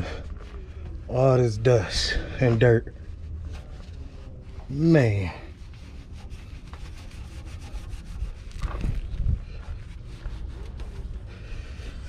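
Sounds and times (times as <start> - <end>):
rag rubbing car underside: 2.5 - 12.0.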